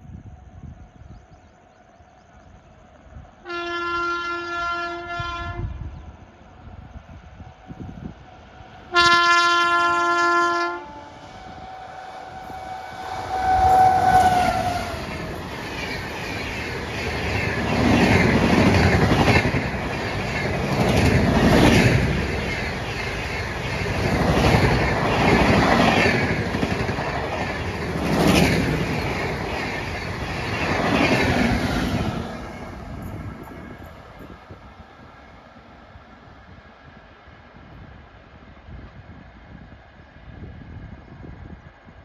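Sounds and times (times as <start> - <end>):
train rumble with falling whine: 0.0 - 42.0
locomotive horn: 3.4 - 5.8, 8.9 - 15.0.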